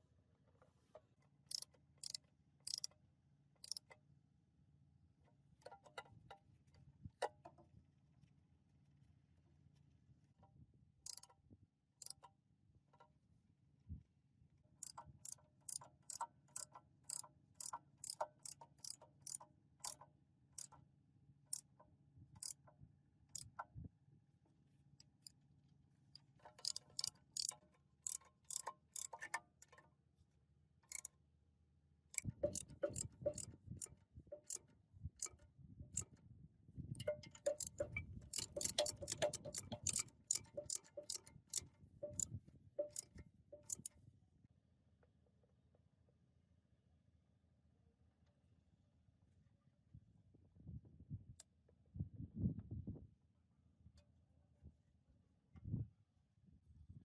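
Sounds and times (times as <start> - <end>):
metallic taps from hand tools: 1.5 - 3.0, 3.6 - 4.0, 11.1 - 11.4, 12.0 - 12.3, 14.8 - 20.0, 23.4 - 23.7, 26.2 - 29.8, 32.2 - 35.4, 37.0 - 44.0.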